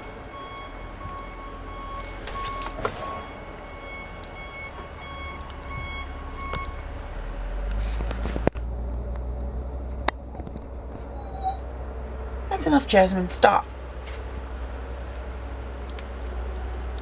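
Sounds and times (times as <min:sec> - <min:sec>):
backup alarm beeping: 0:00.0 - 0:07.3, 0:08.6 - 0:10.0
machine engine rumble: 0:00.0 - 0:17.0.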